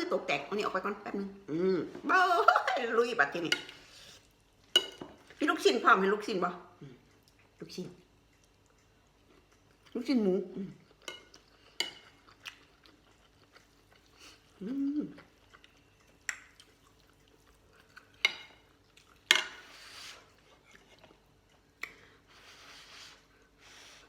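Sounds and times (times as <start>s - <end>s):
chewing: 6.7s - 24.0s.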